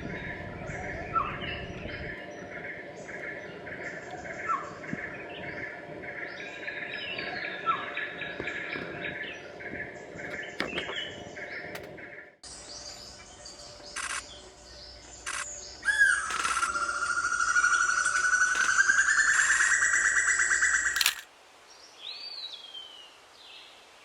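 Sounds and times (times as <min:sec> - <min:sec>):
birds calling and singing: 0:00.0 - 0:23.6
sustained whistled tone: 0:15.3 - 0:21.0.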